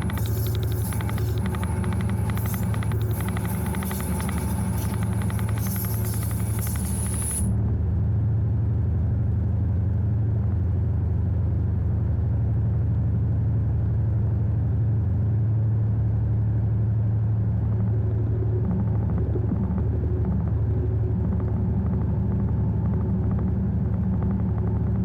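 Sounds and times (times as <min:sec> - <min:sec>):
bright hissing: 0:00.0 - 0:07.5
diesel locomotive engine drone: 0:00.0 - 0:25.0.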